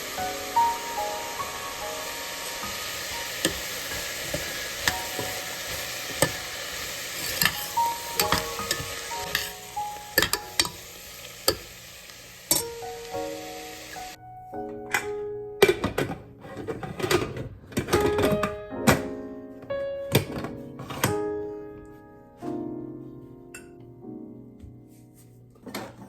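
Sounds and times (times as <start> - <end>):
gentle background music: 0.0 - 11.9, 12.5 - 26.0
food sizzling in a pan: 0.0 - 14.2
utensil knocking on pan: 7.2 - 9.5, 10.2 - 10.8.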